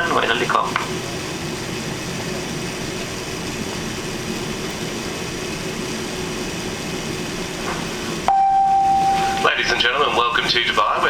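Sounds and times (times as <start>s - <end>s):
airplane cabin noise: 0.0s - 11.0s
faint steady hum: 5.4s - 10.8s.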